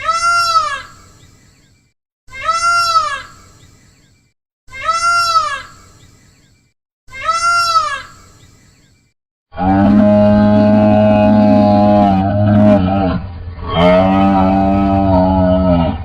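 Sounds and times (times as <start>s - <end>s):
cow mooing: 9.6s - 16.0s.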